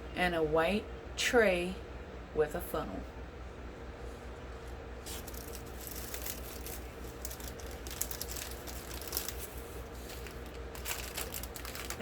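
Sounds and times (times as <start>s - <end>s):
plastic packaging crinkling: 5.0s - 12.0s.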